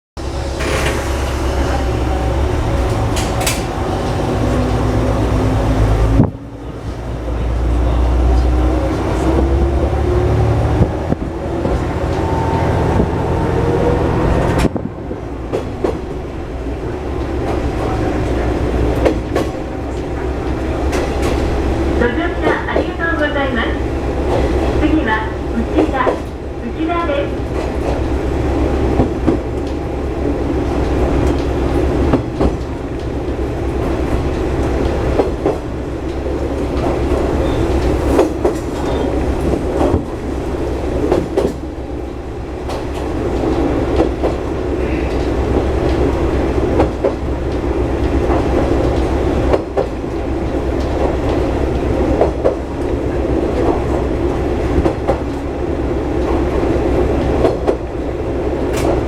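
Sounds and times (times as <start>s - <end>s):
wheels clattering over rail joints: 0.2s - 6.3s
diesel engine drone: 0.2s - 27.4s.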